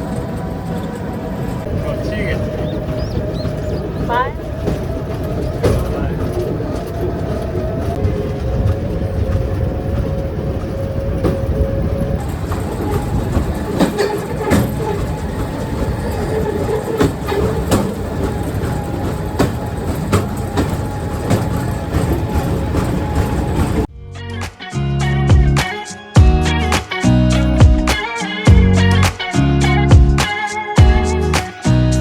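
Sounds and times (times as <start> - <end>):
steel wheels rumbling on rails: 0.0 - 23.9
clicks and clacks: 0.1 - 23.9.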